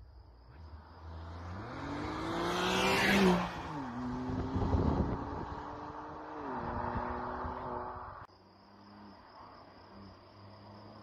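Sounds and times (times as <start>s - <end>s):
car engine accelerating hard: 1.0s - 8.3s.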